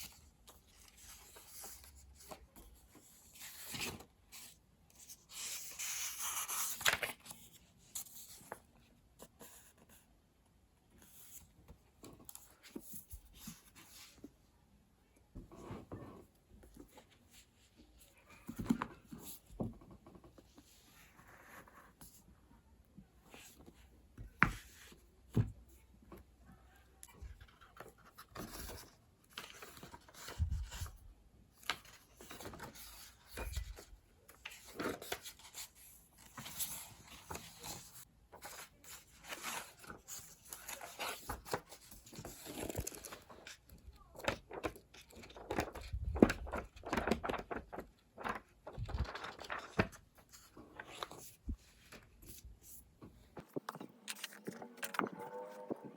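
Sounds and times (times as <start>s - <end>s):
paper rustling: 0.0s - 8.6s, 31.6s - 55.8s.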